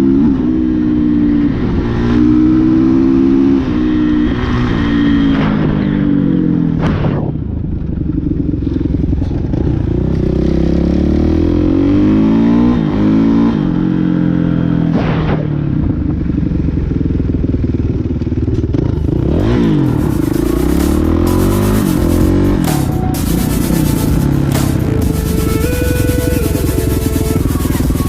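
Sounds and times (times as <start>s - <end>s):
dirt bike engine revving: 18.7s - 28.0s.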